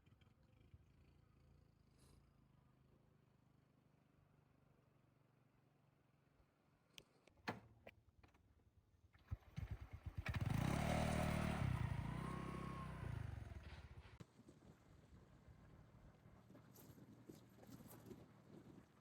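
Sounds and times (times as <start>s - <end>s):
motorcycle engine: 9.2s - 14.2s.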